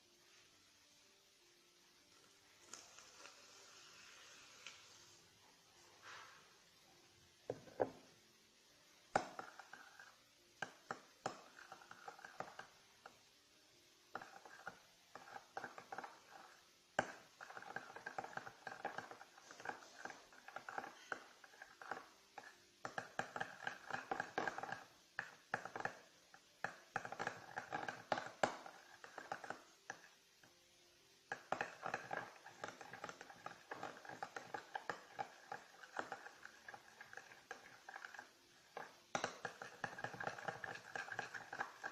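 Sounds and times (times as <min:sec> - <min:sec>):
slime squelching while stirred: 0:02.2 - 0:05.2, 0:09.1 - 0:13.3, 0:14.1 - 0:30.6, 0:31.2 - 0:41.9.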